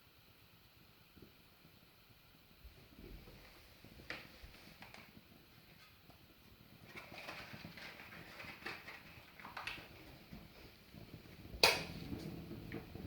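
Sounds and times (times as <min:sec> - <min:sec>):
fire crackling: 0:00.8 - 0:13.0
fire pops: 0:02.7 - 0:13.0.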